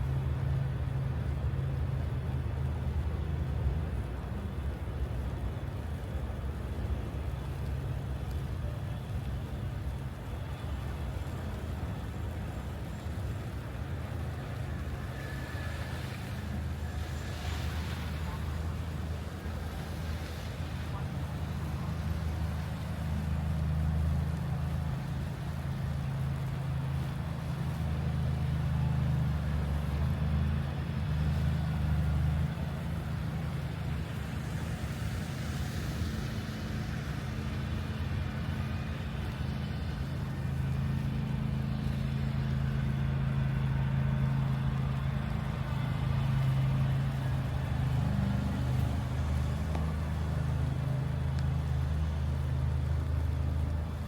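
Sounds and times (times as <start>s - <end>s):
low outdoor rumble: 0.0s - 54.0s.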